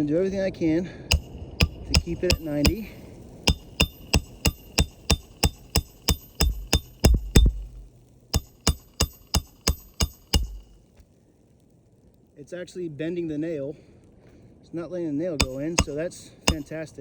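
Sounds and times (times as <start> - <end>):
hammer striking metal tool: 1.1 - 10.8, 15.4 - 16.7.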